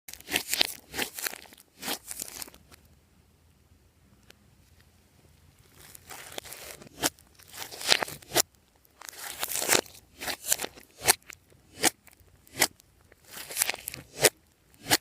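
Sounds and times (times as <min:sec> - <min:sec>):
slime crackling and tearing: 0:00.1 - 0:02.7, 0:05.6 - 0:15.0.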